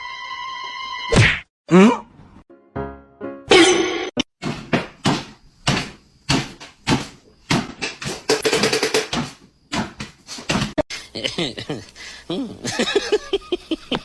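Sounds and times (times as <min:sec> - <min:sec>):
sharp knocks and bangs: 0:03.5 - 0:10.8.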